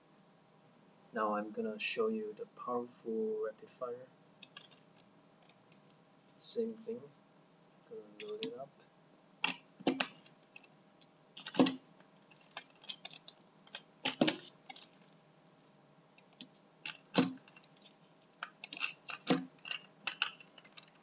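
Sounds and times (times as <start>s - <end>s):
marbles clicking in plastic toy: 11.4s - 15.7s, 18.4s - 21.0s.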